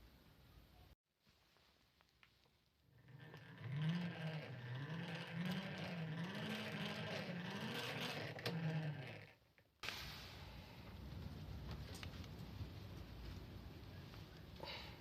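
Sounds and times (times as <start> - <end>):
hand-cranked grinder whirring: 2.9 - 9.5.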